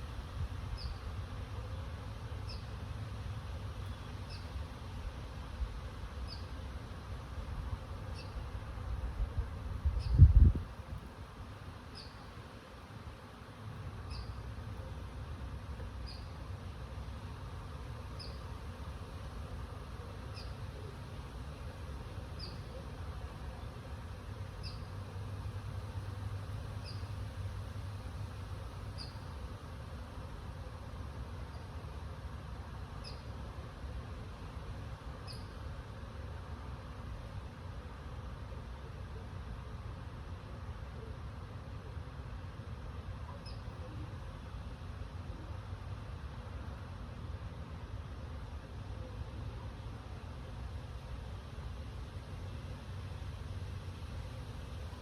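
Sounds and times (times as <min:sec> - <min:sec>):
wind with low rumble: 0:00.0 - 0:55.0
wind buffeting microphone: 0:09.8 - 0:10.8.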